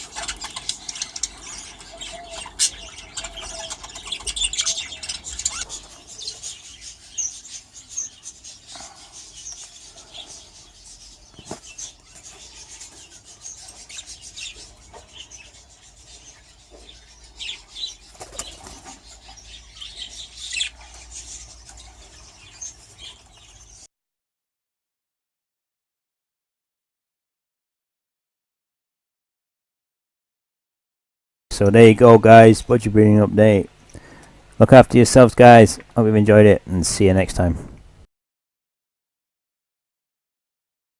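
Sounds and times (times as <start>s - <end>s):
wings fluttering: 0.0s - 7.1s, 11.3s - 15.4s, 16.7s - 19.4s
budgies chirping: 0.0s - 23.9s, 31.6s - 38.0s.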